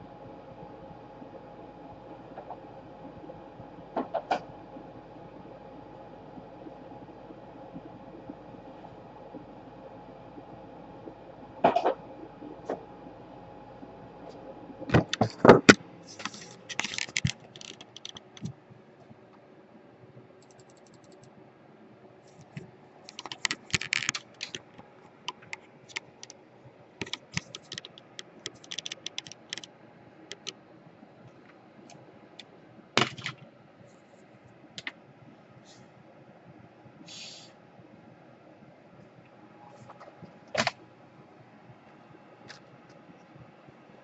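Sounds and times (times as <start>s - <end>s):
small laptop parts clicking: 15.0s - 18.5s, 22.4s - 26.4s, 27.0s - 29.7s, 30.3s - 30.6s.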